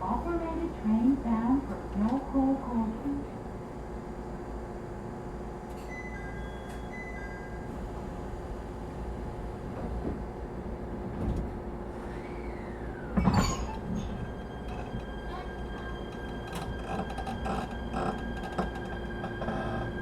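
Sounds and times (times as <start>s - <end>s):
electric train hum: 0.0s - 20.0s
sliding door banging shut: 13.2s - 14.1s.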